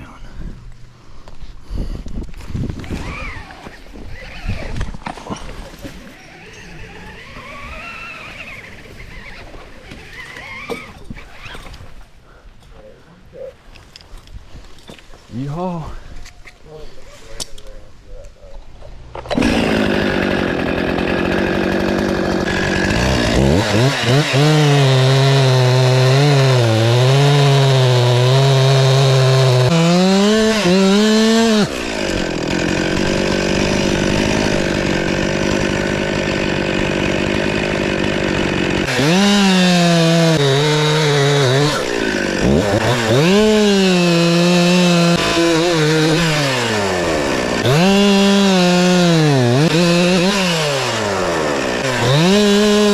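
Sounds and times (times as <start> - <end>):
chainsaw idling and revving: 5.8 - 11.0, 19.2 - 52.9.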